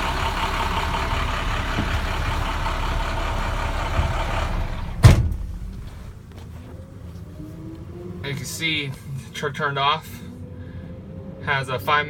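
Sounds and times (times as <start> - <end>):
diesel engine idling: 0.0 - 7.2
loud thump: 3.9 - 6.2.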